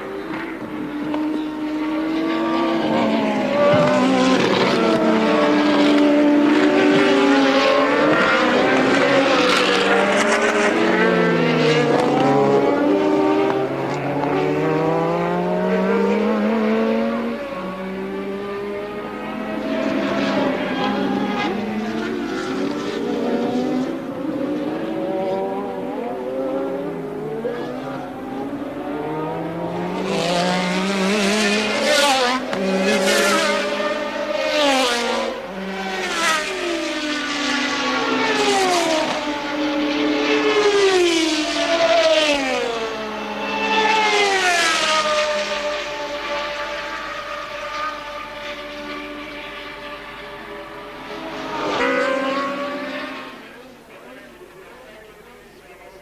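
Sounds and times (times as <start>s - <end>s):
racing cars passing at speed: 0.0s - 56.0s.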